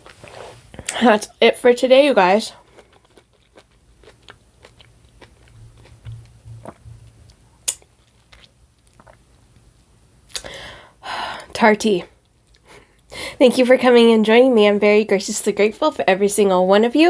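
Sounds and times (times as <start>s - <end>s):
person chewing food: 2.5s - 9.4s
wet mouth clicks: 5.5s - 7.9s.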